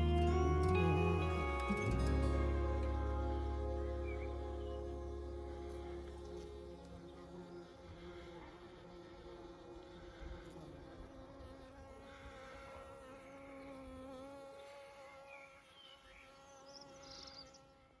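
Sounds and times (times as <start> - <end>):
faint high chirps: 0.0 - 7.3
bees buzzing: 0.0 - 18.0.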